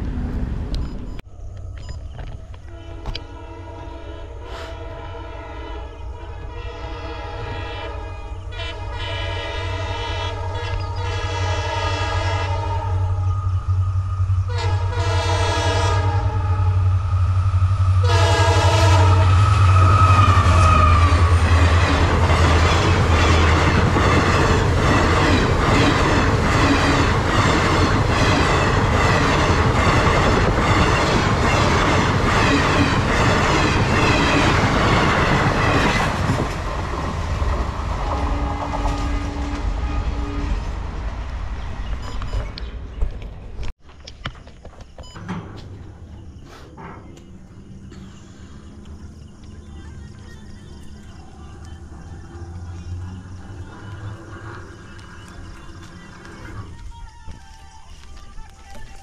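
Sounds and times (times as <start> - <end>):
train coaches rumbling: 0.0 - 43.8, 44.4 - 59.0
train horn blasts: 2.6 - 36.5, 38.0 - 40.9.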